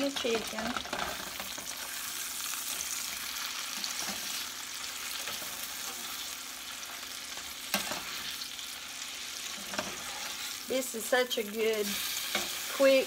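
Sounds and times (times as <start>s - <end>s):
chicken sizzling in a skillet: 0.0s - 13.0s
fork scraping: 9.5s - 10.6s.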